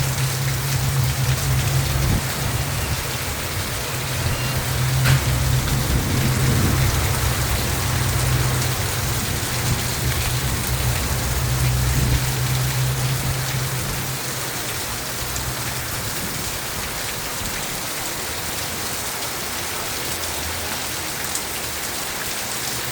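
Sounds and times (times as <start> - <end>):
low rumble of thunder: 0.0 - 17.6
storm rain falling: 0.0 - 22.9.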